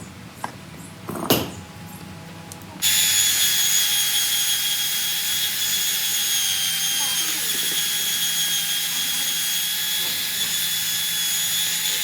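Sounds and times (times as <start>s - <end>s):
electric power tool whining: 2.8s - 12.0s.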